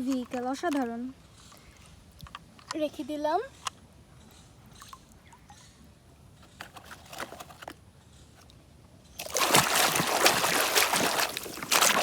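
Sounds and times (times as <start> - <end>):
water splashing and running: 9.2 - 12.0.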